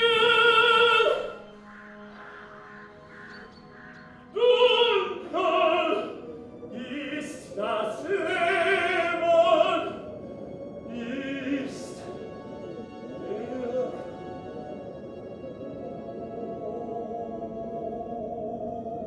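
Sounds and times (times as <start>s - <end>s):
faint background music: 0.0s - 19.0s
operatic singing with vibrato: 0.0s - 19.0s.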